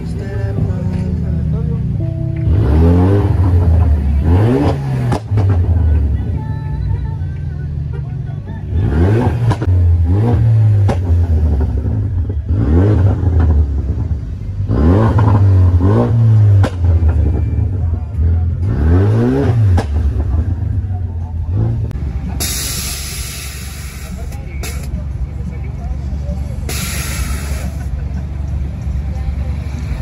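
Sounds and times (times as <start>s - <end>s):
cars revving past: 0.0s - 6.4s, 8.4s - 25.2s.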